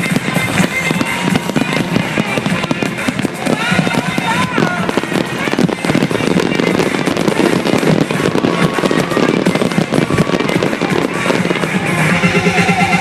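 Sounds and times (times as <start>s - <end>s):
fireworks crackling and banging: 0.0s - 13.0s
music playing: 0.0s - 13.0s.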